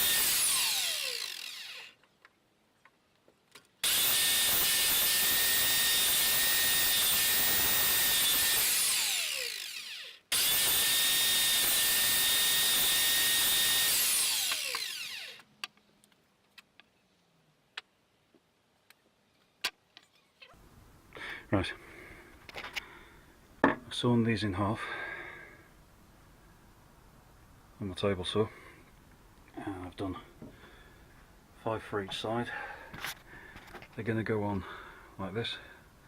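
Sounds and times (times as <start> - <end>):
table saw motor whining: 0.0 - 2.0, 3.8 - 15.4.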